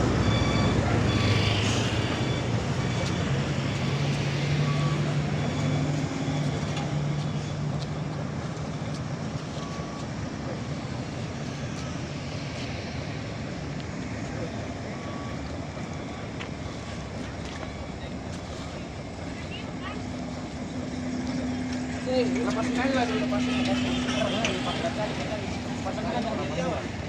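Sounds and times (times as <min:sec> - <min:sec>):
faint high beep: 0:00.0 - 0:07.9, 0:14.3 - 0:20.4
constant rumble: 0:00.0 - 0:27.0
diesel truck engine hum: 0:00.0 - 0:27.0.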